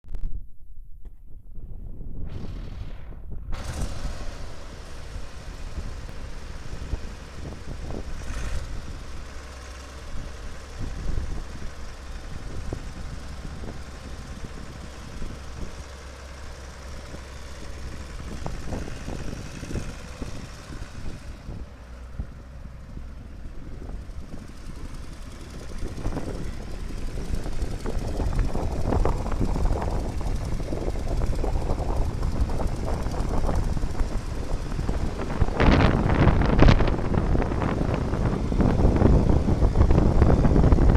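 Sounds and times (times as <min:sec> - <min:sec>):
wind on microphone: 0:00.1 - 0:09.2, 0:17.1 - 0:40.9
tractor diesel engine idling: 0:03.6 - 0:40.9.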